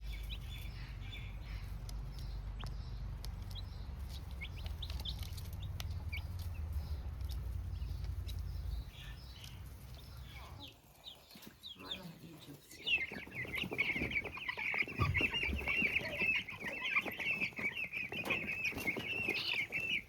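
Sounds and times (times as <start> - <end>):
low steady rumble: 0.0 - 10.6
baby chicks cheeping: 0.0 - 20.0.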